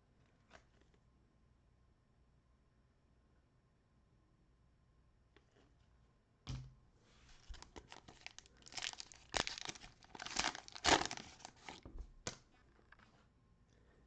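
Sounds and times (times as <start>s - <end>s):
plastic wrapper tearing and crinkling: 7.4s - 11.8s.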